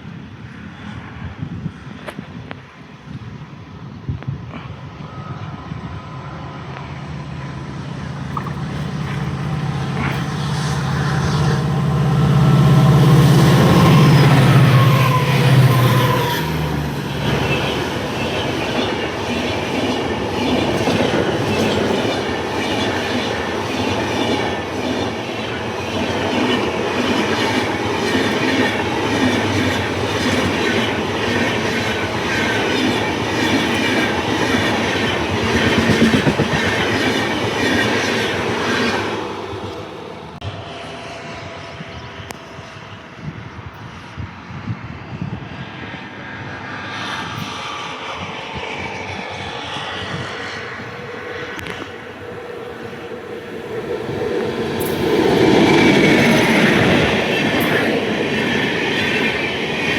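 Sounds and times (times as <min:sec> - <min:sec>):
locomotive humming: 0:02.7 - 0:43.4, 0:49.0 - 0:59.9
train wheels clacking on rails: 0:07.9 - 0:39.9, 0:51.1 - 0:59.9.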